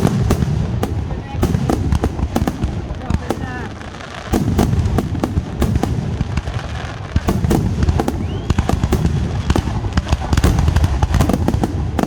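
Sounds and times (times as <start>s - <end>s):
fireworks cracks and bangs: 0.0s - 12.0s
faint rising whistle: 8.0s - 8.9s.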